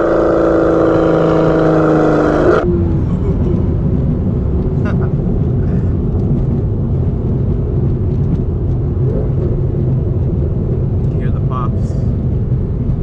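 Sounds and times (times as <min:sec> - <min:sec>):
car engine droning while driving: 0:00.0 - 0:13.0.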